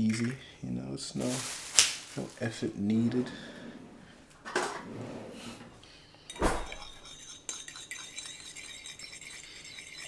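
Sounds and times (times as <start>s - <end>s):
faint steady hiss: 0.0s - 7.0s.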